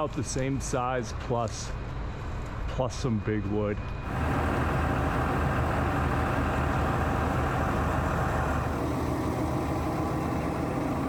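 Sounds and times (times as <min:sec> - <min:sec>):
crane diesel engine running: 0:04.1 - 0:11.0.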